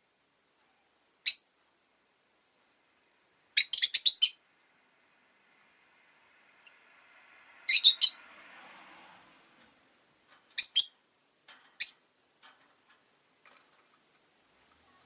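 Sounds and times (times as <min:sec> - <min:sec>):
lovebirds chirping shrilly: 0:01.3 - 0:01.5, 0:03.6 - 0:04.4, 0:07.7 - 0:08.2, 0:10.6 - 0:11.0, 0:11.8 - 0:12.0.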